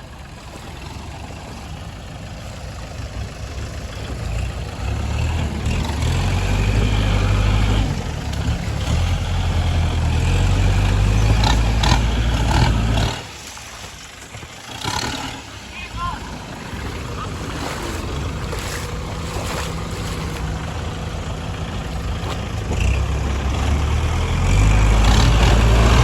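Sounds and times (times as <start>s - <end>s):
tractor engine rumbling: 0.0s - 26.0s.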